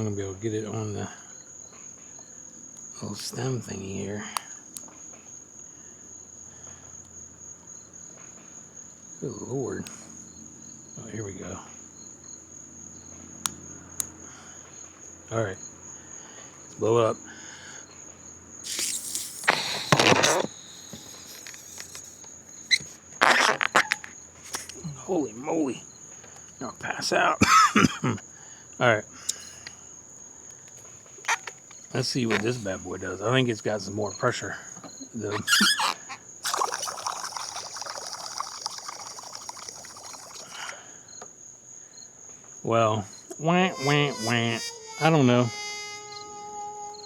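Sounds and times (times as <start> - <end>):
crickets chirping: 0.0 - 47.0
insect trill: 0.0 - 47.0
person blowing into balloon: 18.7 - 22.1, 23.2 - 24.6, 35.3 - 40.8, 43.7 - 47.0.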